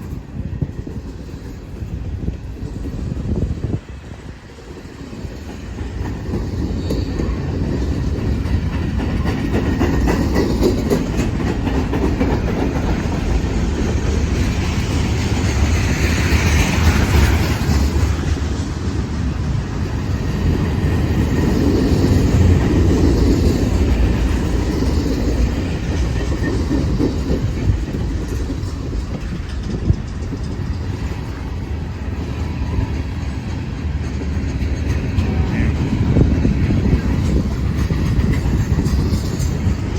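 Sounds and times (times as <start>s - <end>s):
freight train cars rumbling: 0.0s - 39.9s
wheels clacking over rail joints: 0.0s - 39.9s.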